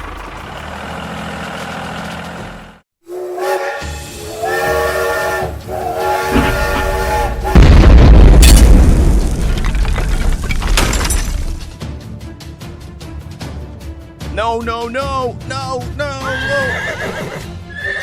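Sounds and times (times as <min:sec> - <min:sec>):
many-toned horn pulses: 0:03.1 - 0:07.7
low rumbling boom: 0:06.3 - 0:10.7.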